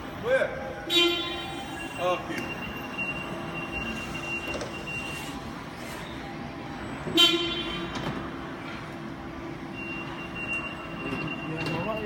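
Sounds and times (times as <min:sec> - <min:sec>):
vehicle horn toot: 0:00.9 - 0:01.8, 0:07.1 - 0:07.9.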